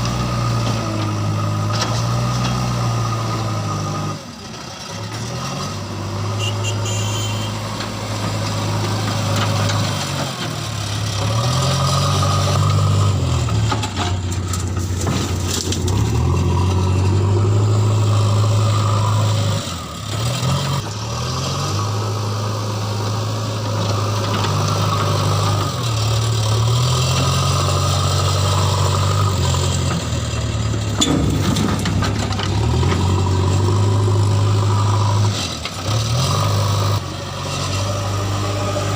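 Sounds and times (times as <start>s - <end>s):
diesel digger engine under load: 0.0s - 38.9s.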